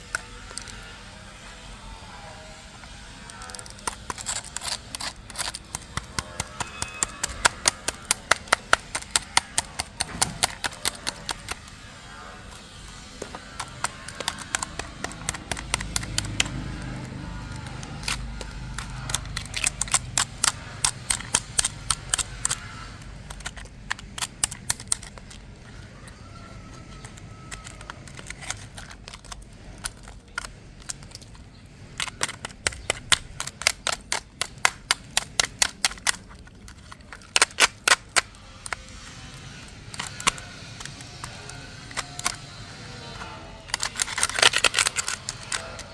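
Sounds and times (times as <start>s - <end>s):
sharp clicks and taps: 2.8s - 11.9s, 12.5s - 45.9s.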